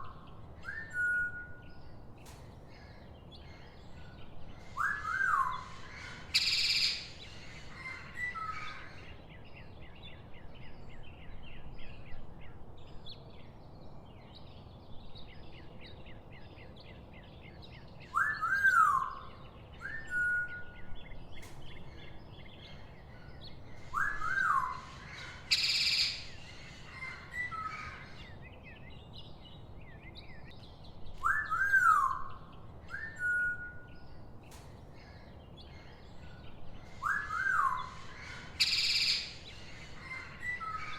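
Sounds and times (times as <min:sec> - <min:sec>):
small high bird chirps: 0:00.0 - 0:08.9, 0:17.4 - 0:40.9
harsh noisy bird calls: 0:02.3 - 0:09.2, 0:21.4 - 0:33.5, 0:34.5 - 0:40.9
bird rising and falling call: 0:23.8 - 0:28.1.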